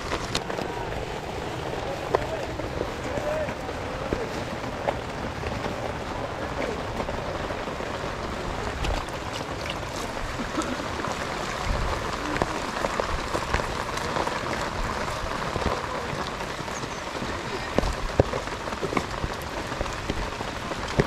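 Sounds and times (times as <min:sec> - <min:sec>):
raindrops ticking on surfaces: 0:00.0 - 0:21.0
steady rain falling: 0:00.0 - 0:21.0.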